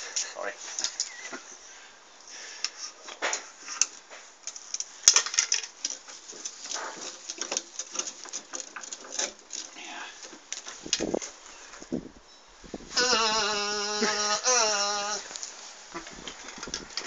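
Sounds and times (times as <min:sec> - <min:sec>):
motorcycle exhaust crackling and popping: 0:02.6 - 0:13.0, 0:15.3 - 0:17.0.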